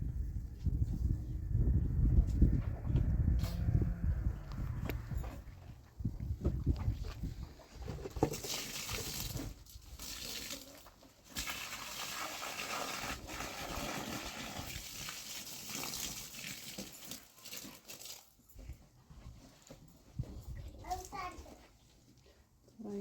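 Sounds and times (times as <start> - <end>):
water running from a tap: 11.4 - 18.2.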